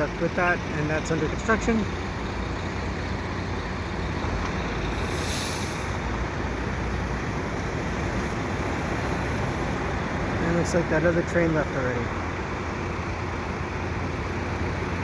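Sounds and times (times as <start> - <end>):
low rumble of traffic: 0.0 - 15.0
brief high hiss: 4.9 - 6.0.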